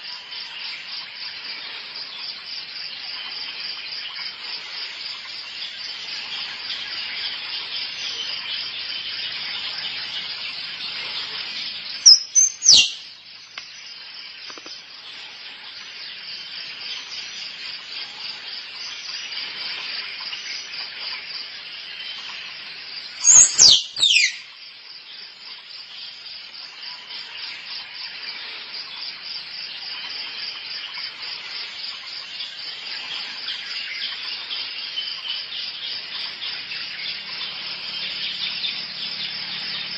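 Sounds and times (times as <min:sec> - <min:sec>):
insects chirring: 0:00.0 - 0:39.9
squirrel calls: 0:12.0 - 0:13.0, 0:23.2 - 0:24.5.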